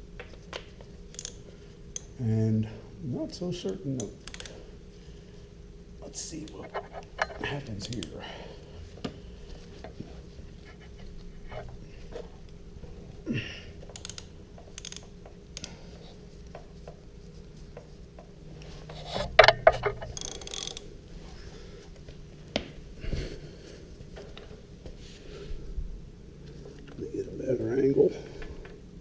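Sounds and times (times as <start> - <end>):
ratchet wrench clicking: 1.1 - 1.4, 4.0 - 4.6, 13.9 - 15.7, 19.4 - 20.8.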